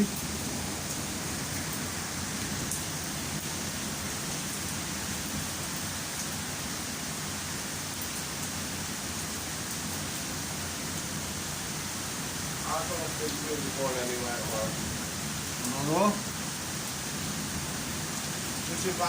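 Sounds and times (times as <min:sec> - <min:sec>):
heavy rain pouring: 0:00.0 - 0:19.0
rain drop ticks: 0:15.6 - 0:15.9.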